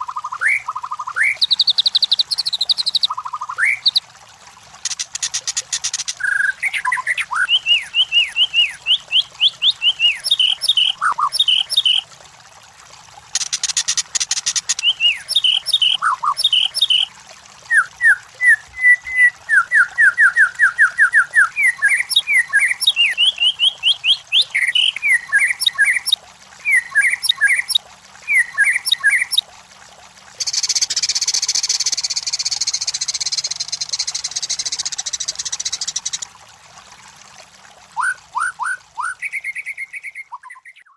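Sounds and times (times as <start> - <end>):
bird whistling song with trills: 0.3 - 4.0, 6.2 - 12.0, 14.7 - 17.1, 17.7 - 29.4, 30.4 - 36.2, 38.0 - 40.9.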